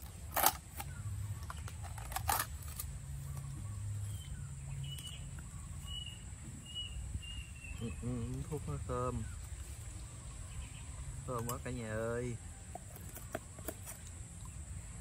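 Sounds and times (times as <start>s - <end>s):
steady low hum: 0.0s - 15.0s
small bird chirping: 3.1s - 12.3s.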